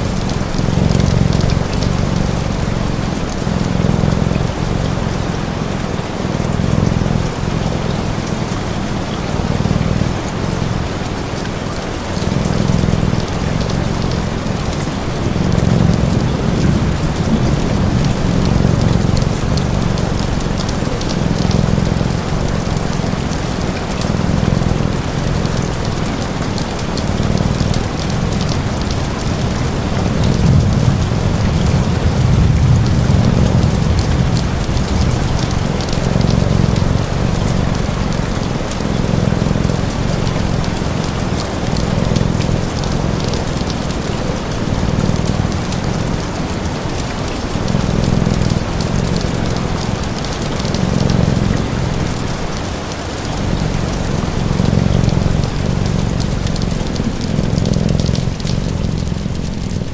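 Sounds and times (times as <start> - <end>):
cat purring: 0.0 - 59.9
rain falling on a surface: 0.0 - 59.9
wood fire crackling: 12.1 - 53.6, 54.2 - 59.9.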